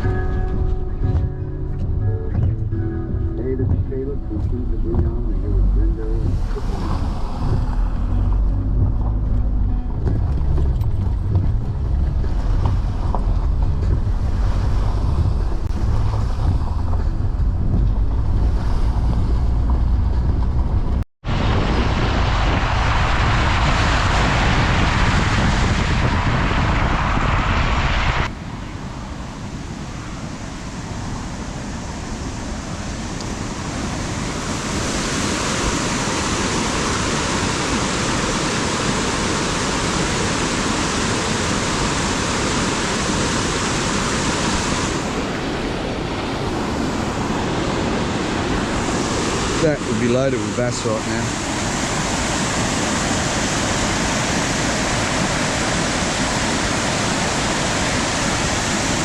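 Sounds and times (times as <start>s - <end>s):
wind on the microphone: 0.0s - 59.0s
fast-flowing floodwater: 3.6s - 19.1s, 21.2s - 59.0s.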